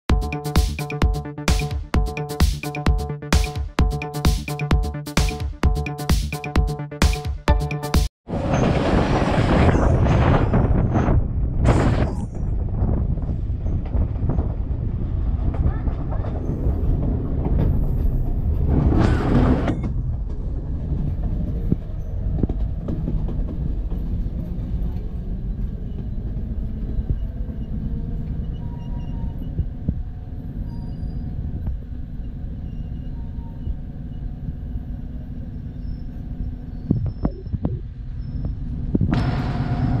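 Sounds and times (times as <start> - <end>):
train wheels rumbling on rails: 8.3 - 32.6.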